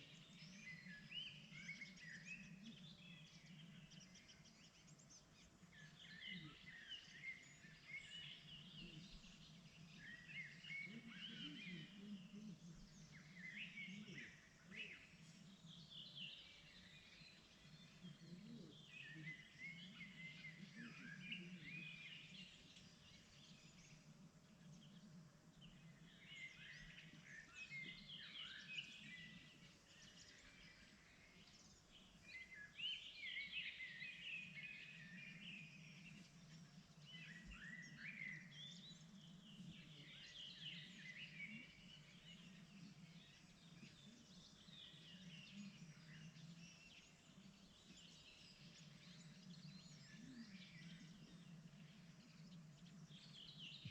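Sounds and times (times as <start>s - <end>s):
songbirds chirping and trilling: 0.0s - 53.9s.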